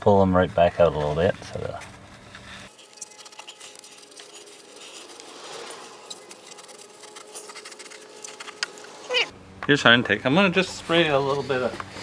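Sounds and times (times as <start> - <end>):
hands scratching and rubbing parts: 0.6 - 9.3.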